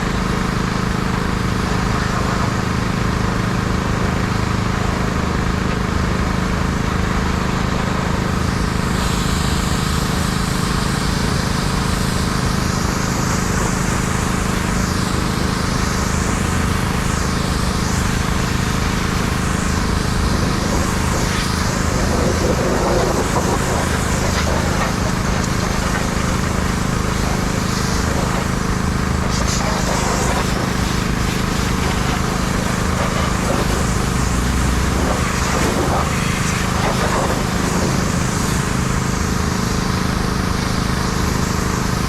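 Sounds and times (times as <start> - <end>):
pressure washer engine humming: 0.0 - 42.0
water jet hissing: 8.6 - 41.0.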